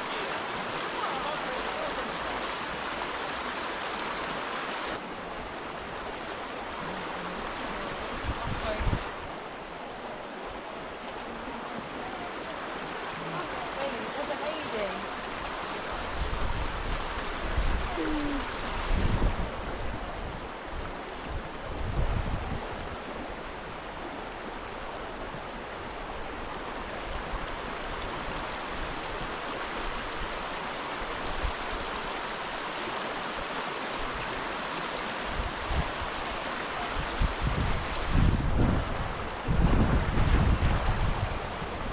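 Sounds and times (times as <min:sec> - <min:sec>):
river water rushing: 0:00.0 - 0:41.9
wind buffeting microphone: 0:07.5 - 0:09.4, 0:15.9 - 0:23.4, 0:37.0 - 0:41.9.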